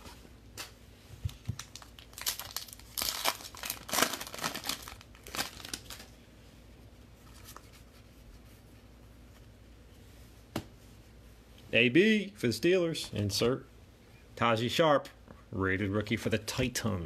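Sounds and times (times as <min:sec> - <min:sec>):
foil wrapper tearing and crinkling: 0:01.6 - 0:06.1.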